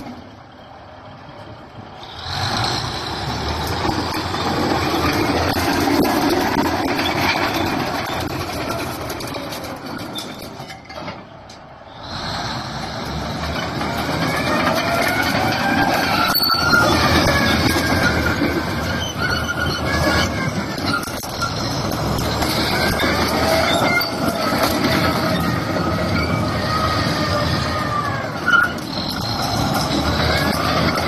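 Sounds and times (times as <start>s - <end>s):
bulldozer engine running: 0.0s - 31.0s
steel tracks squealing: 0.0s - 31.0s.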